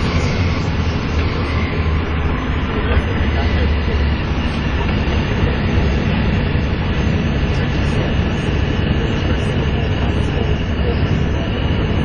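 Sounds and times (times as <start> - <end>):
bus diesel engine drone: 0.0 - 12.0
road noise: 0.0 - 12.0
turbocharger whine: 0.0 - 12.0.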